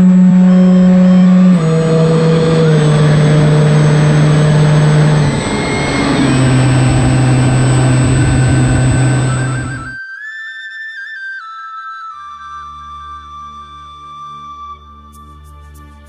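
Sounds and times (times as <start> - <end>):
electric motor and propeller whine: 0.0 - 10.0.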